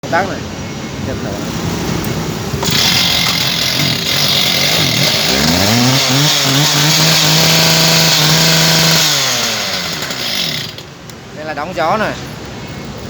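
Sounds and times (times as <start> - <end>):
small petrol engine revving: 1.2 - 10.9.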